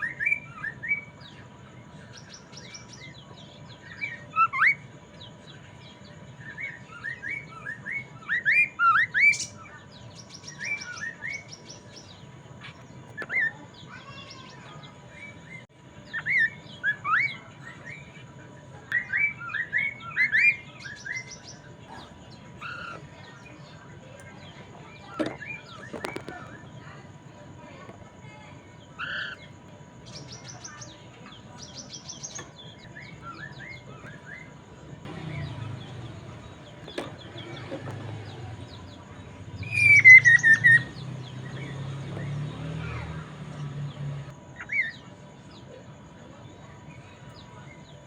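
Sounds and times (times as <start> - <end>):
bird singing sharp chirps: 6.4 - 18.1, 19.0 - 26.8, 28.9 - 45.0.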